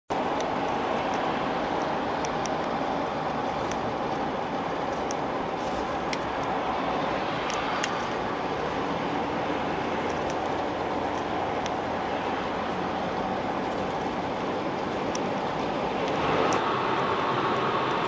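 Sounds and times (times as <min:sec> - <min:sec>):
highway traffic hiss: 0:00.1 - 0:18.0.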